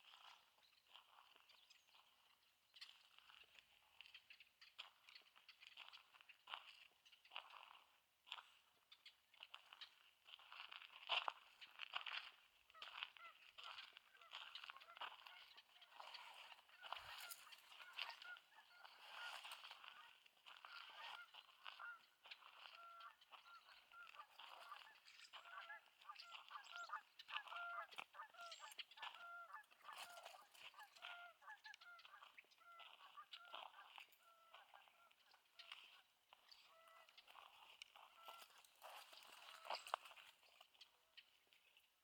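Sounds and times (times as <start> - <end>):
waterbirds calling: 12.8 - 41.3.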